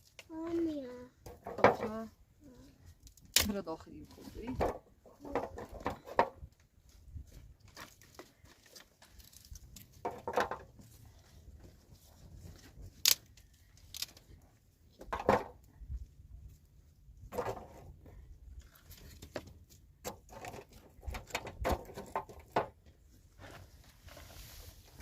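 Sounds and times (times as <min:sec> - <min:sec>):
short scrapes or rustles: 0:23.3 - 0:25.0.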